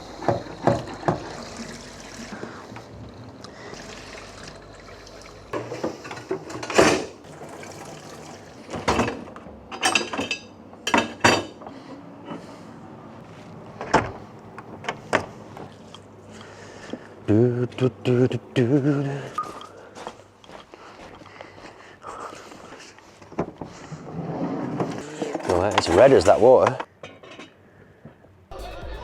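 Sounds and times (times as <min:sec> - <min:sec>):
tap water running: 0:00.0 - 0:09.5
dishes and cutlery clinking: 0:08.9 - 0:11.6, 0:27.0 - 0:27.6.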